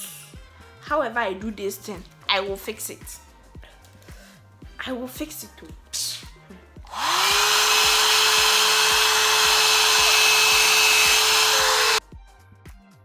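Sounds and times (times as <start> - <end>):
small electric motor spinning: 6.9 - 12.0.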